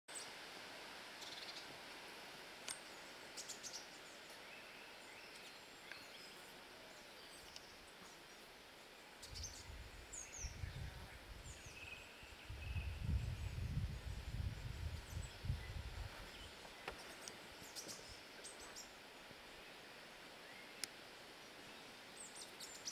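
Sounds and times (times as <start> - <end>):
faint outdoor hiss: 0.1 - 22.9
small birds chirping: 1.2 - 1.7, 2.6 - 22.9
low rumble on microphone: 9.4 - 16.5.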